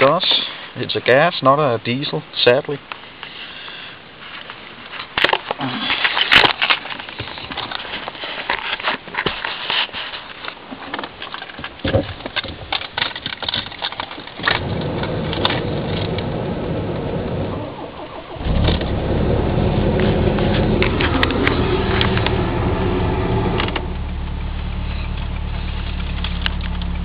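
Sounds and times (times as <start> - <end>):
car engine starting and running: 14.4 - 27.0.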